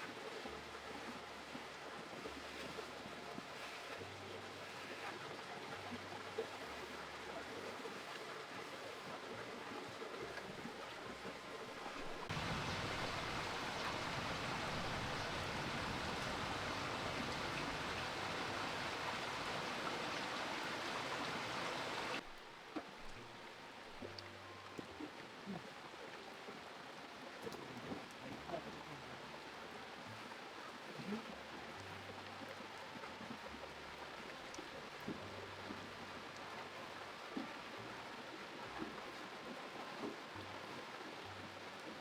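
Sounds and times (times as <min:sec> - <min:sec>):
steady rushing noise: 0:12.3 - 0:22.2.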